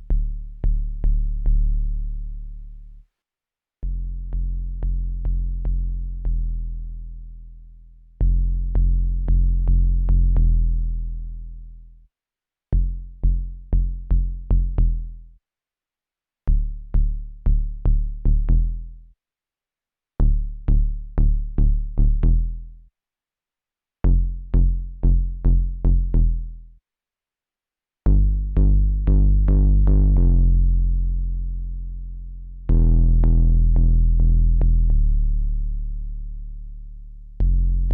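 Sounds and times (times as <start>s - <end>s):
synthesizer kick-bass notes: 28.1s - 37.9s.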